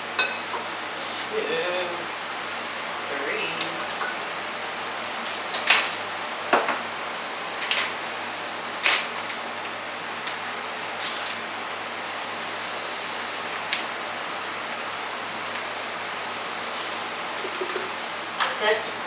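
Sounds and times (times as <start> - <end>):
utensils and dishes clinking: 0.2 - 0.7, 3.6 - 4.2, 5.5 - 6.1, 7.6 - 8.0, 8.8 - 9.4.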